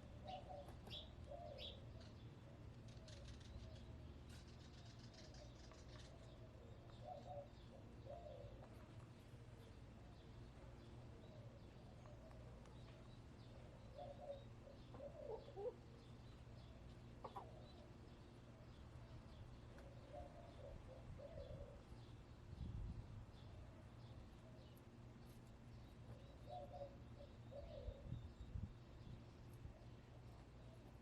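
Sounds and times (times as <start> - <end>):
hens clucking softly: 14.2 - 15.9, 17.2 - 17.6.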